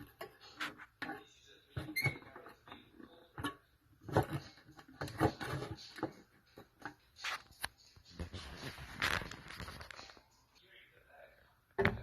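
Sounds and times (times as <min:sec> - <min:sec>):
objects knocking and clattering: 0:00.0 - 0:07.1.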